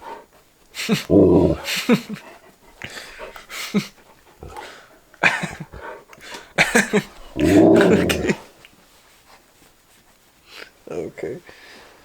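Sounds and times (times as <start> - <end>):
dogs panting and whining: 0.0 - 8.6.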